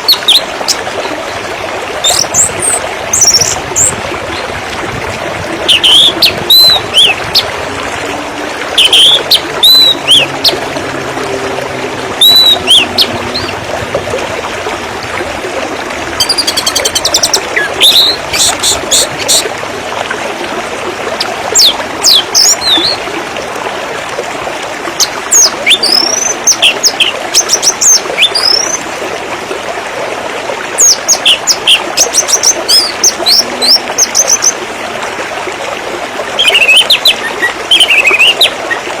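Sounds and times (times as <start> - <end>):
running water: 0.0 - 39.0
songbird chirping and whistling: 8.8 - 10.3, 12.2 - 13.5.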